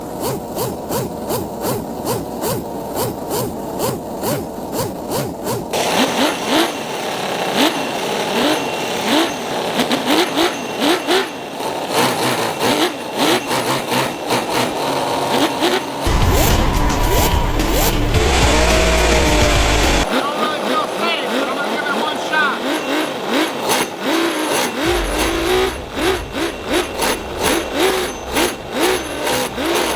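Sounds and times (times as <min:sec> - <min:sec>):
engine revving in blips: 0:00.0 - 0:29.9
deep rumble: 0:16.1 - 0:20.1, 0:24.8 - 0:29.9.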